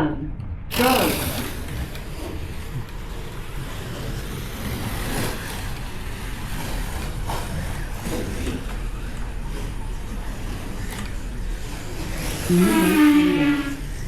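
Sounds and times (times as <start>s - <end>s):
slot cars whirring on track: 0.7s - 14.0s.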